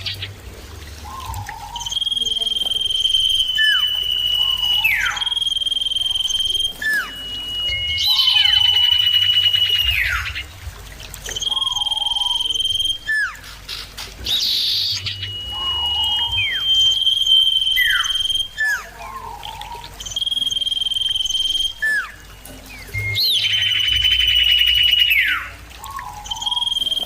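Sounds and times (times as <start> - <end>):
birds singing high whistles: 1.0 - 10.6, 11.2 - 27.0.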